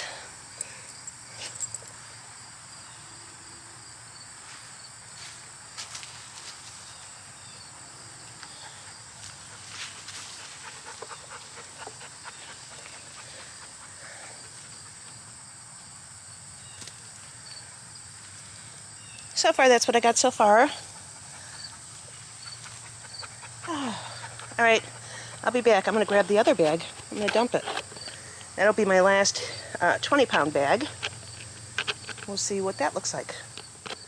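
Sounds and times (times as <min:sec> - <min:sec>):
insects chirring: 0:00.0 - 0:05.2, 0:06.7 - 0:34.0
hands sorting potatoes in soil: 0:23.6 - 0:34.0.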